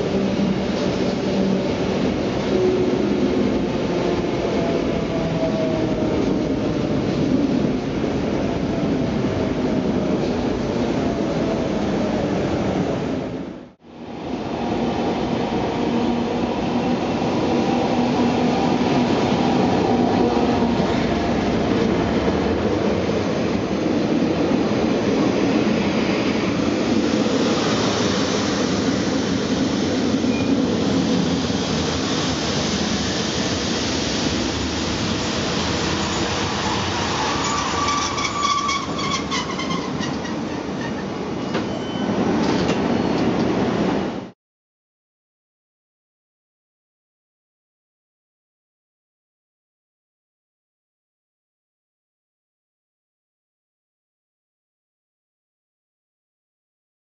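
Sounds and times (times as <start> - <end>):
train wheels rumbling: 14.8 - 44.0.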